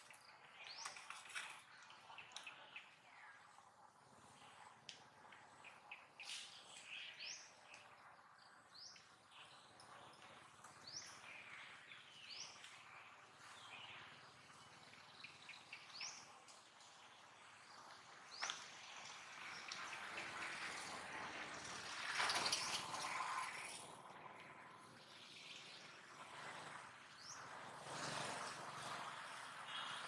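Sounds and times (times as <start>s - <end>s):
light outdoor hiss: 0.0s - 30.0s.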